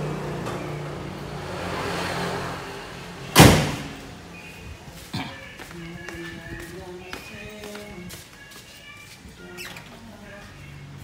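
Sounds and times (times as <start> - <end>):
loud sharp bang: 3.3 - 4.0.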